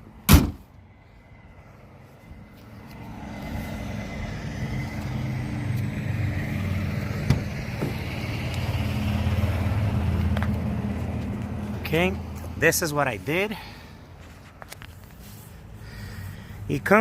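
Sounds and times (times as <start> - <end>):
truck engine running: 3.4 - 12.6.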